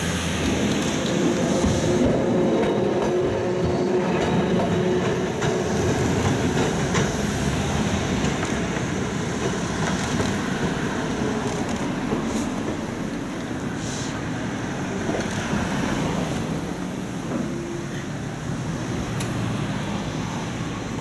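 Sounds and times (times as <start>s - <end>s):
tram wheels rumbling on track: 0.0s - 21.0s.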